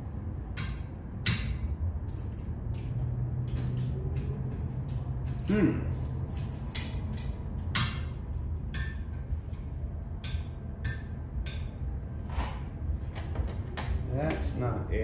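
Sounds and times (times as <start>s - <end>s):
steady low hum: 0.0s - 15.0s
small tools clicking and clinking: 2.0s - 9.1s.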